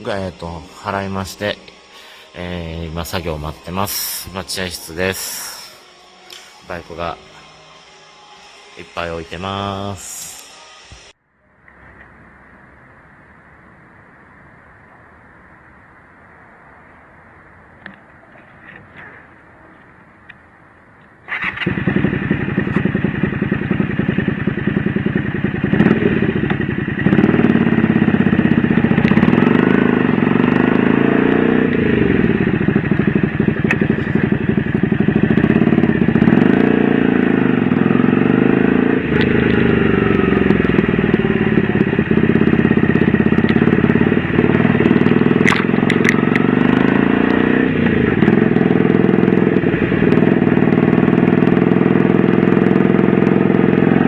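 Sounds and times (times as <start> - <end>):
motorcycle engine revving: 21.3 - 54.0.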